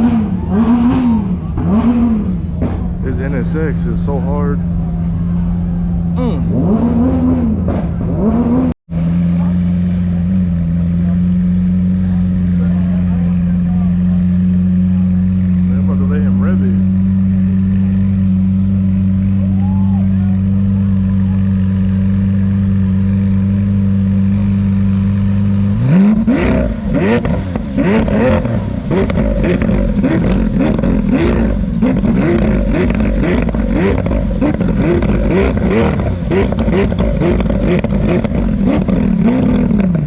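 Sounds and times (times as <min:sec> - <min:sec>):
car engine idling and revving: 0:00.0 - 0:40.0
exhaust crackles: 0:00.0 - 0:40.0.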